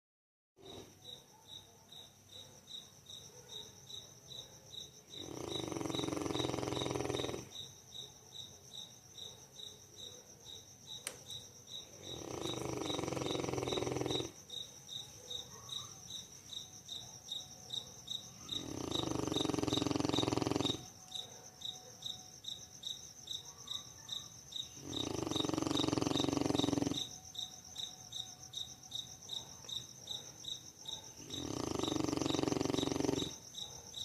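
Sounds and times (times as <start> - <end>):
dog snoring: 5.2 - 7.7, 12.0 - 14.4, 18.4 - 21.0, 24.8 - 27.2, 31.0 - 33.8.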